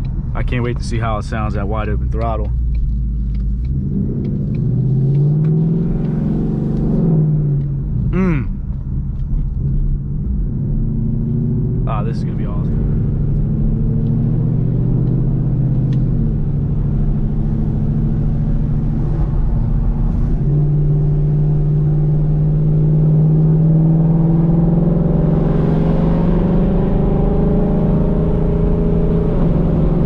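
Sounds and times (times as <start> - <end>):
car engine deep exhaust note: 0.0 - 30.0.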